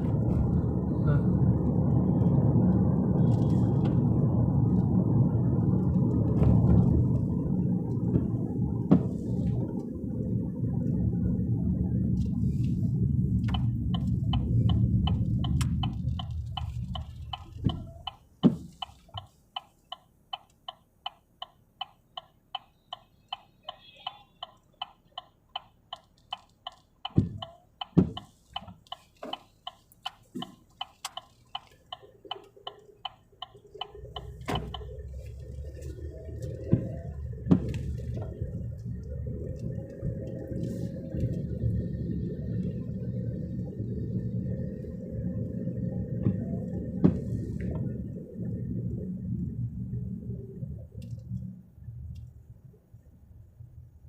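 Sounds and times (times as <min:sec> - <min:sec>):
car driving rumble: 0:00.0 - 0:54.0
turn signal clicking: 0:12.1 - 0:49.0
dull thumps: 0:13.5 - 0:19.3, 0:27.0 - 0:30.9, 0:36.4 - 0:38.5.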